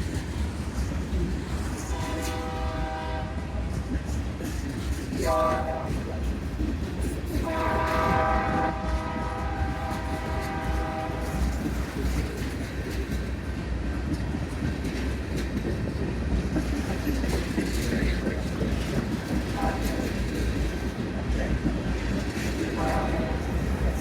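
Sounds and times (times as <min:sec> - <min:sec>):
freight train rumble: 0:00.0 - 0:24.0
train wheel clatter: 0:00.0 - 0:24.0
locomotive air horn: 0:01.8 - 0:03.6, 0:05.2 - 0:06.0, 0:07.4 - 0:11.6, 0:19.6 - 0:20.0, 0:22.8 - 0:24.0.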